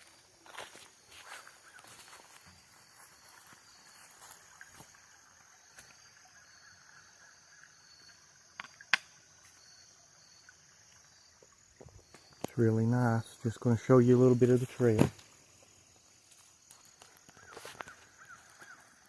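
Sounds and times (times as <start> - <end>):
creek water flowing: 0.0 - 19.0.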